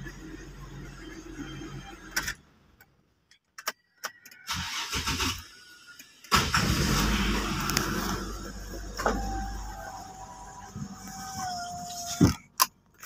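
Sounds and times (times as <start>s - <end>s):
car starter cranking: 4.4s - 11.3s.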